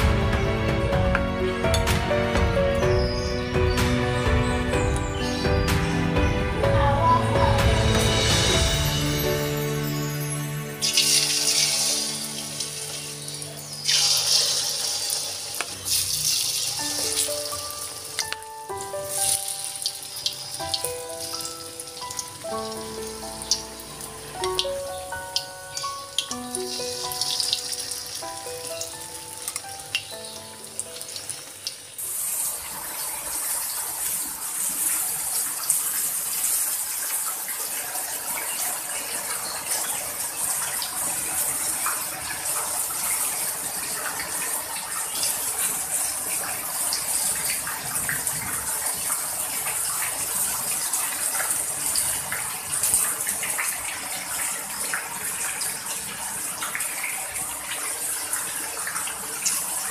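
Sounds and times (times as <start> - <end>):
background music: 0.0 - 31.7
heavy rain pouring: 0.0 - 59.9
tofu crackling in oil: 10.8 - 24.1
water gushing off roof: 10.8 - 59.9.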